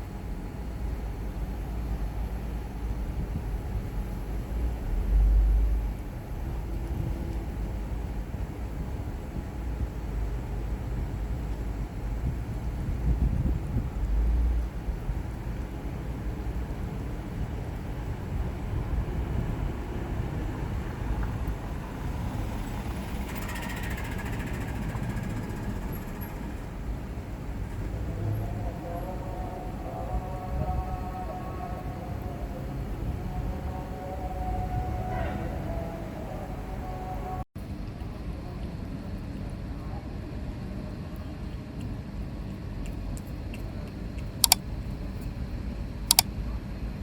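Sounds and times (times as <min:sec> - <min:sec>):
steady low rumble: 0:00.0 - 0:23.4
street background rumble: 0:00.0 - 0:47.0.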